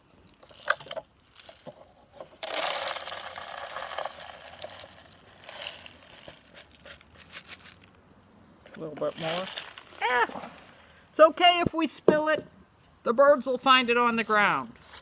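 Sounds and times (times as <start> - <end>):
clicks and rustles: 0.2 - 8.0
birdseed pouring into plastic feeder: 2.4 - 6.7.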